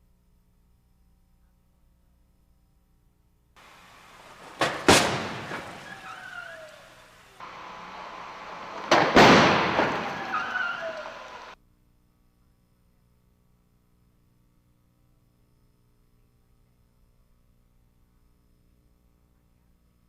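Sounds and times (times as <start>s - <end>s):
car crash impact bang: 3.6s - 11.6s
metal crunching and scraping: 3.7s - 6.1s, 7.4s - 11.5s
faint screech: 5.3s - 11.6s.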